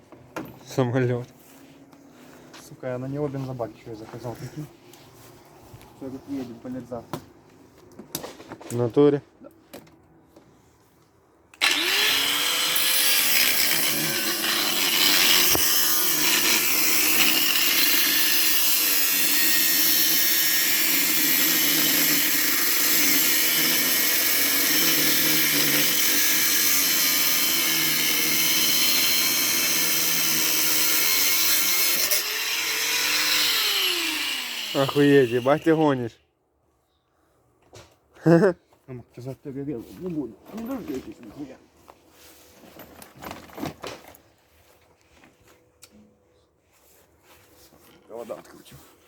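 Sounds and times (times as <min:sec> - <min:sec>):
power tool motor whirring: 0:11.6 - 0:35.8.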